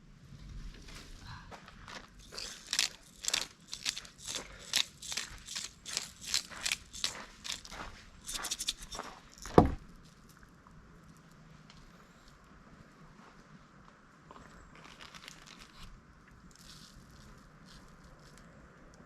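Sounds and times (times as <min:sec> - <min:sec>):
footsteps crunching on forest ground: 0:01.5 - 0:10.3
heavy thump: 0:09.5 - 0:09.8.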